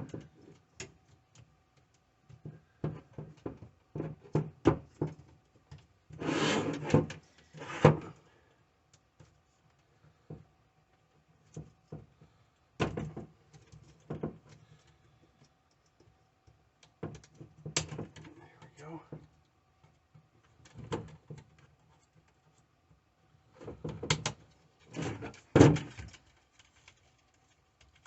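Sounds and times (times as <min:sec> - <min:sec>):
scraping rustle: 0:06.1 - 0:08.1
plastic parts clicking and tapping: 0:12.8 - 0:18.3, 0:23.6 - 0:24.6.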